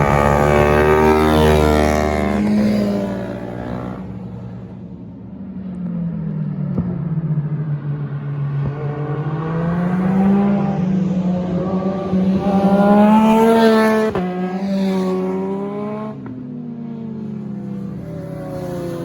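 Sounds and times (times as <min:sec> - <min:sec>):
car engine accelerating hard: 0:00.0 - 0:04.2, 0:07.7 - 0:16.1.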